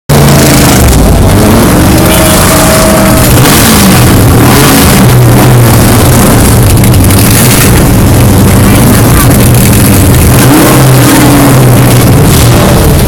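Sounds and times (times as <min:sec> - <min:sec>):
car engine running: 0:00.1 - 0:13.0
wind and road noise: 0:00.1 - 0:13.0.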